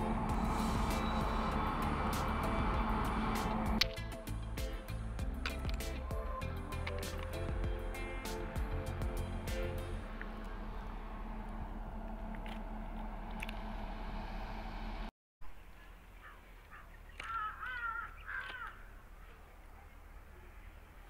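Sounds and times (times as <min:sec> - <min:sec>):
goods train wagons rumbling: 0:00.0 - 0:15.1
crow cawing: 0:16.2 - 0:19.0.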